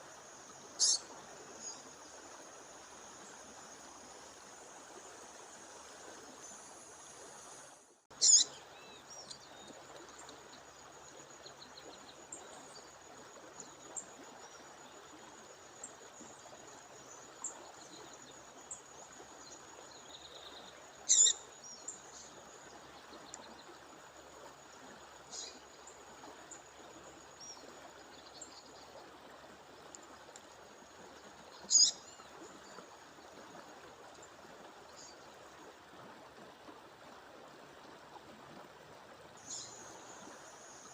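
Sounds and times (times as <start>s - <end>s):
faint bird chirps: 0.8s - 1.9s, 8.2s - 9.7s, 21.1s - 22.3s, 31.6s - 32.2s.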